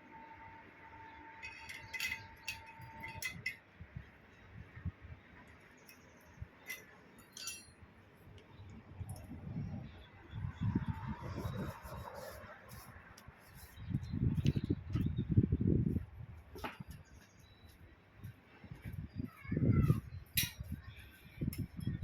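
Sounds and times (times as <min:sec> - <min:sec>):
metal parts clinking: 0:01.4 - 0:03.6, 0:05.8 - 0:07.8, 0:20.3 - 0:20.8
ringing metallic tone: 0:06.7 - 0:07.8.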